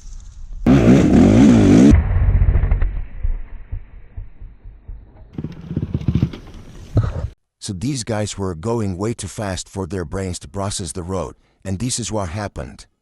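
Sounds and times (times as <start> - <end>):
motorcycle engine: 0.7 - 3.1, 4.2 - 6.9.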